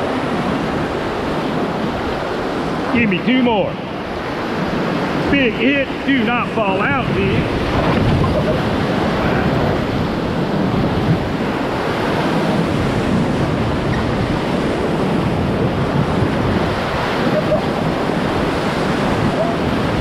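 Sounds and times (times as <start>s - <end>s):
whitewater rushing: 0.0s - 20.0s.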